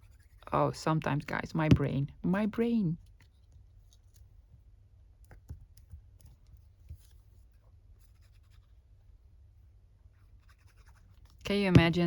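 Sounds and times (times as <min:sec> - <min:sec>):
faint taps of paper and tools: 0:05.2 - 0:08.7.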